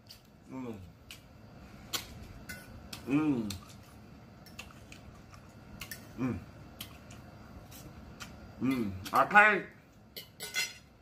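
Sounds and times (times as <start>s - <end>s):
chewing and mouth smacking: 2.9s - 6.1s
person humming: 6.2s - 6.5s.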